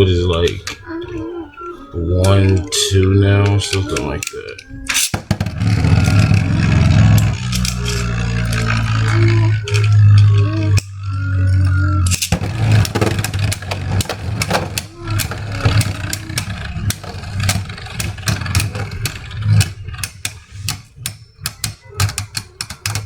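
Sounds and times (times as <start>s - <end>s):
spinning tops humming: 0.0s - 23.0s
tops landing in plastic stadium: 5.0s - 7.4s
spinning tops clashing: 12.1s - 23.0s.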